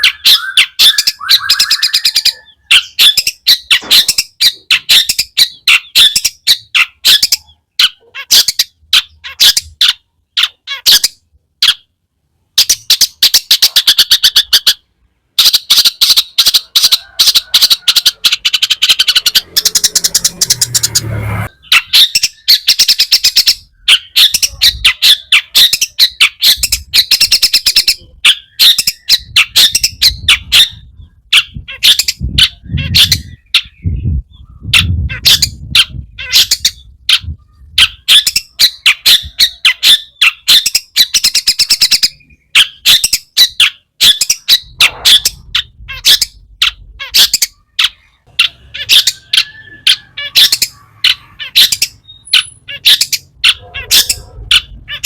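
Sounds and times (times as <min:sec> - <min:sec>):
shrike singing sharp chattering notes: 0:18.1 - 0:24.2.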